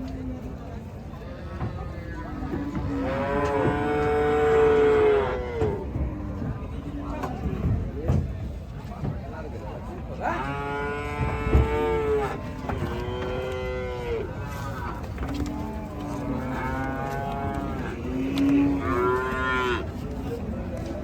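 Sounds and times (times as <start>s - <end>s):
cattle mooing: 2.6s - 5.8s, 15.6s - 19.9s.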